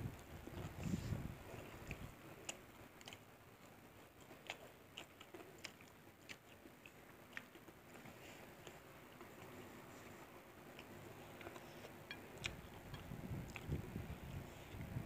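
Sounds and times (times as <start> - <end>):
faint chewing: 0.1 - 15.0.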